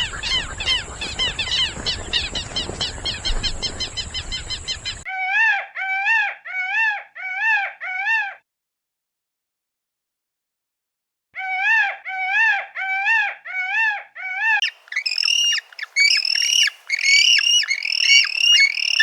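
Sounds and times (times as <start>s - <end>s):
rapid bird calls: 0.0s - 5.1s, 14.6s - 19.0s
clear rising and falling bird calls: 14.6s - 19.0s.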